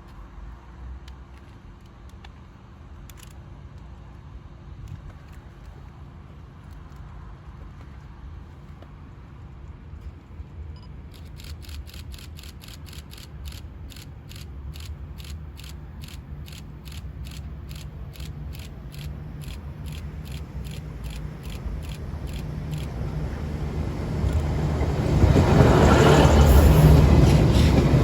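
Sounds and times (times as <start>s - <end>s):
approaching train rumble: 11.2s - 28.0s.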